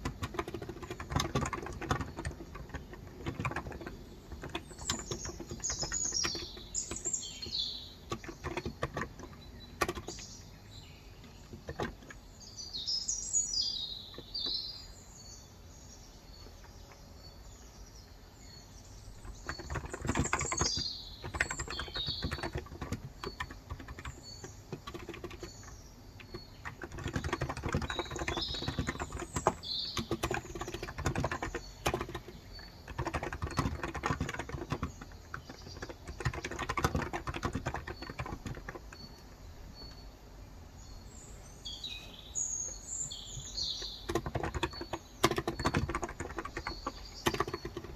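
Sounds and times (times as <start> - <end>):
typing on a keyboard: 0.0 - 10.6, 11.2 - 12.2, 19.0 - 40.1, 43.1 - 47.9
birds chirping: 0.0 - 47.9.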